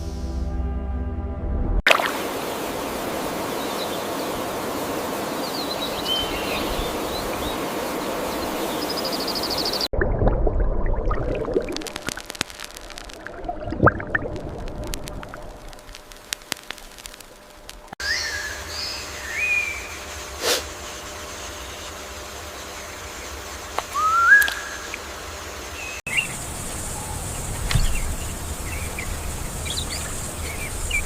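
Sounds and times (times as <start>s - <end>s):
rushing water: 1.9s - 17.9s
sharp clicks: 14.8s - 18.0s.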